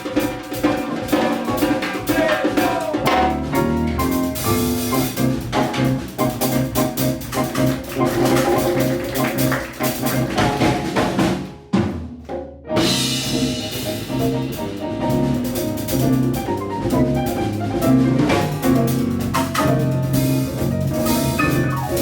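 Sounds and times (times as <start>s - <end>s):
drum kit and hand percussion: 0.0s - 22.0s
latin jazz band playing: 0.0s - 22.0s.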